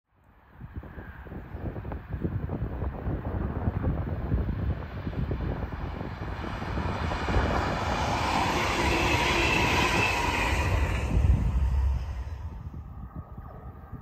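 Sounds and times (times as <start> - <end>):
wind buffeting microphone: 0.5 - 14.0
train passing at speed: 2.4 - 13.5.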